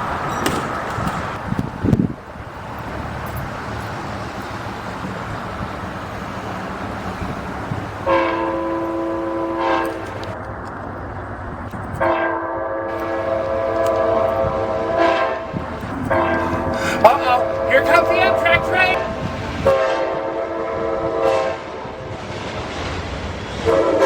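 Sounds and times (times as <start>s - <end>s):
train air horn blasts: 8.0s - 10.4s, 12.0s - 22.0s, 23.6s - 24.0s
background noise: 15.4s - 19.0s.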